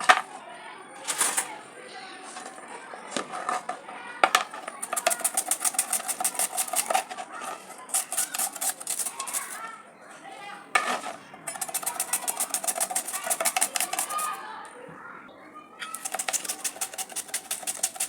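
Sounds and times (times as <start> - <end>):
utensil clattering against pot: 3.2 - 9.6, 10.8 - 14.4, 15.8 - 18.0.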